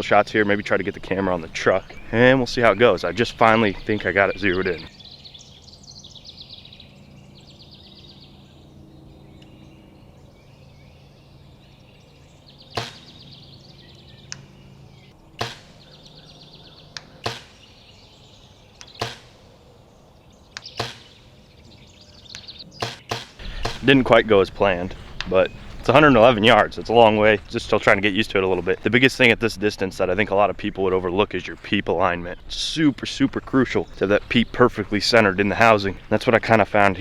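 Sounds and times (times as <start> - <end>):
faint bird or insect chirping: 1.3 - 24.0
arrow striking target: 12.8 - 13.3, 15.4 - 16.0, 17.0 - 17.7, 18.8 - 19.5, 20.6 - 21.2, 22.8 - 25.9.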